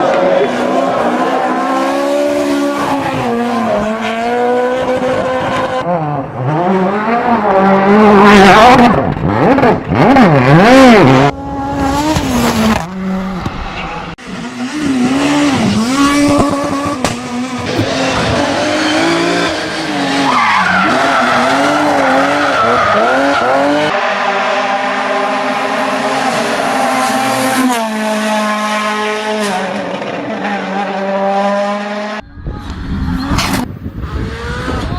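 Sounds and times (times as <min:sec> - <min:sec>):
rally car engines revving: 0:00.0 - 0:34.9
tyre noise: 0:16.0 - 0:18.9.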